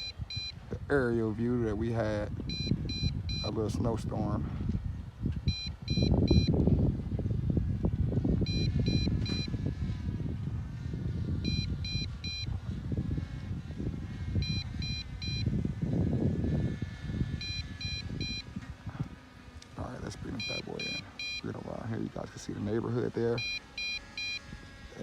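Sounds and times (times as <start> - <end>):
short high warning beeps: 2.5 - 3.6, 20.3 - 21.5, 23.4 - 24.4.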